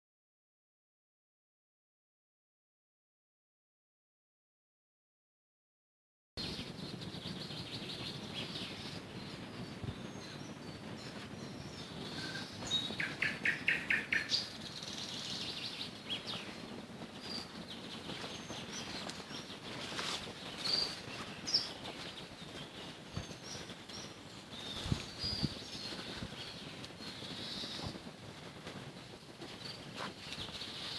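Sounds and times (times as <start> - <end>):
nightingales singing: 6.4 - 16.6
songbirds chirping: 6.4 - 30.9.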